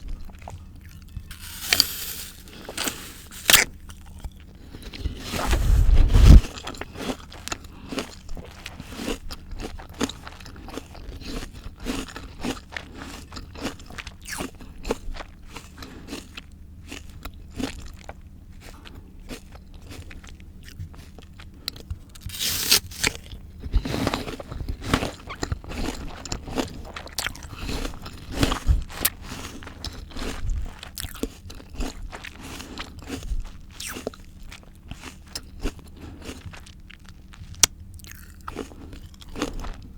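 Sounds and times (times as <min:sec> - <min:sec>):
crisp chewing crunches: 0:00.3 - 0:39.9
biting raw fruit: 0:00.9 - 0:04.3, 0:22.2 - 0:23.4.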